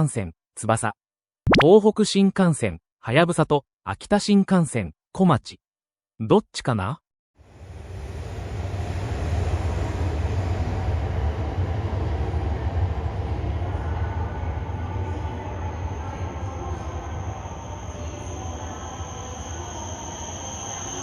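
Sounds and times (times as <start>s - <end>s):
train wheels rumbling: 7.4s - 21.0s
thin high whine: 15.1s - 21.0s.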